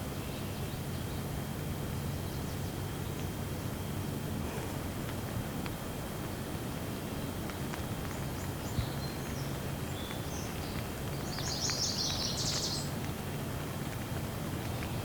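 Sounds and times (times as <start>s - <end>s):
steady rain: 1.5s - 15.0s
small bird chirping: 8.6s - 13.0s.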